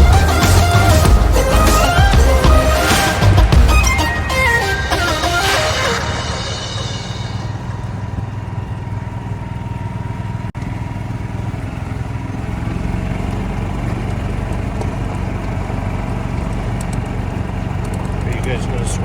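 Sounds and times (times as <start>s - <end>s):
golf cart engine running: 0.0s - 3.9s, 6.8s - 19.0s
road and wind noise: 6.6s - 19.0s.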